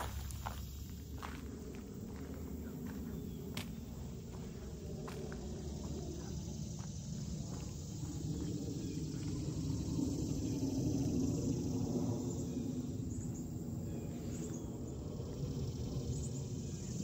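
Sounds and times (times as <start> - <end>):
footsteps on a trail: 0.0 - 9.4
steady low rumble: 0.0 - 17.0.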